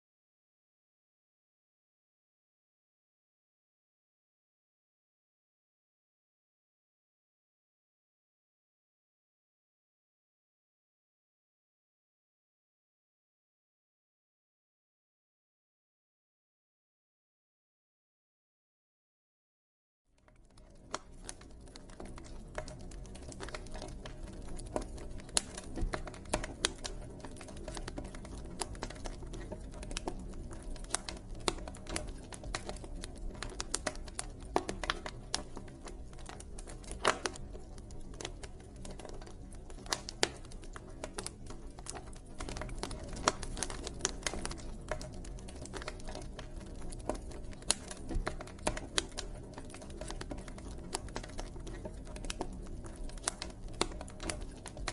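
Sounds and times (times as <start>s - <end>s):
campfire crackling and popping: 20.3s - 54.9s.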